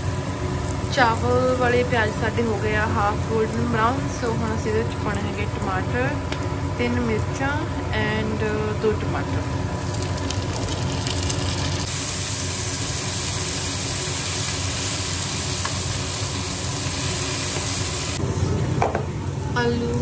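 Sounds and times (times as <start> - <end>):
onions sizzling in oil: 0.0 - 7.6, 8.2 - 18.5
low steady hum: 0.0 - 13.6.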